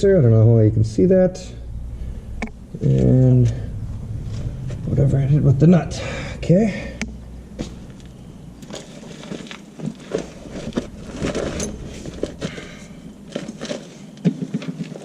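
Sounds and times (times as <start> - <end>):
metal hardware clinking: 11.1 - 13.6.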